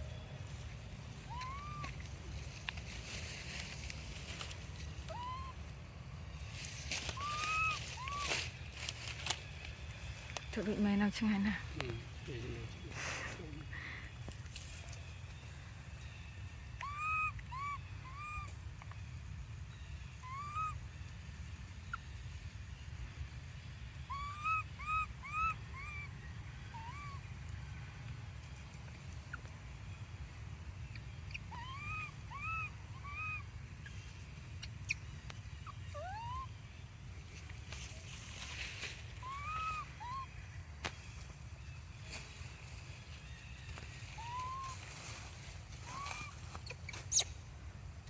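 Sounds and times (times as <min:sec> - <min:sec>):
baby monkey cooing: 0:01.2 - 0:02.2, 0:05.0 - 0:05.7, 0:07.1 - 0:08.3, 0:16.6 - 0:18.6, 0:20.1 - 0:20.9, 0:24.0 - 0:26.1, 0:26.7 - 0:27.4, 0:30.8 - 0:36.6, 0:39.1 - 0:40.4, 0:44.1 - 0:44.8, 0:45.8 - 0:47.4.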